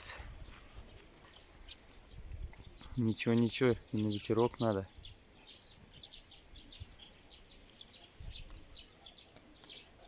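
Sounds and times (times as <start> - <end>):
small birds chirping: 0.0 - 10.0
wind rumble on microphone: 2.0 - 3.0, 8.2 - 8.8.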